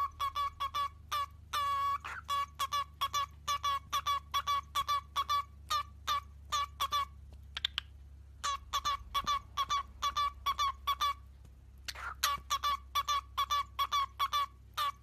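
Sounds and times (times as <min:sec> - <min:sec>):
parrot squawking: 0:00.0 - 0:11.3, 0:11.9 - 0:15.0.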